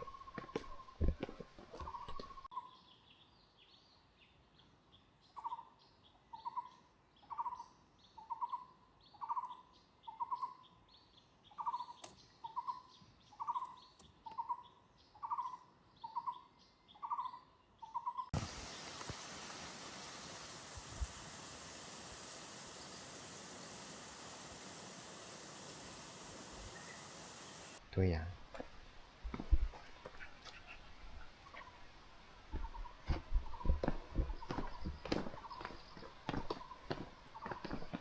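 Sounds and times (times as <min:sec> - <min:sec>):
steady hiss: 0:18.4 - 0:27.9
high bird chirps: 0:25.7 - 0:27.8.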